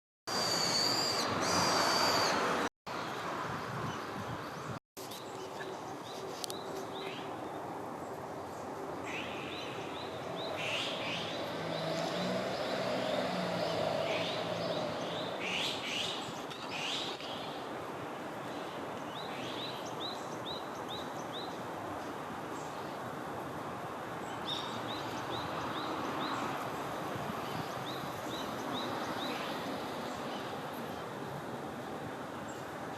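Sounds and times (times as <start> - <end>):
high whistle: 0.3 - 2.4
outdoor background hiss: 0.3 - 32.9.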